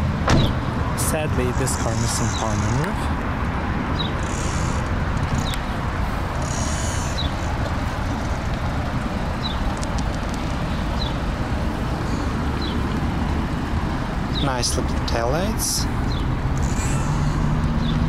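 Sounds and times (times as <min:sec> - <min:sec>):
bird chirping: 0:04.0 - 0:05.7, 0:06.4 - 0:07.5.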